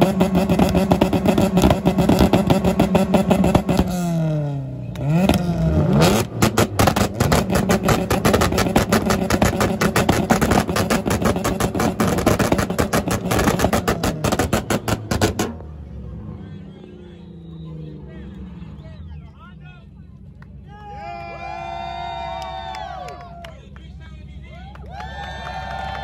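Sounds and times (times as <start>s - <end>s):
car engine revving: 0.0s - 20.7s.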